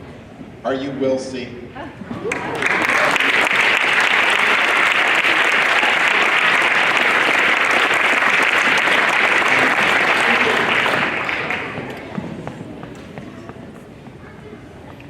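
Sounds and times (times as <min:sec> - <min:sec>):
audience applauding: 0:02.2 - 0:12.1.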